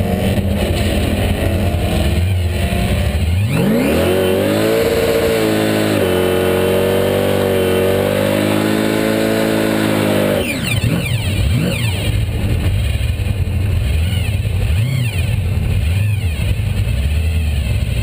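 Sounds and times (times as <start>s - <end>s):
race car engine revving: 0.0s - 18.0s.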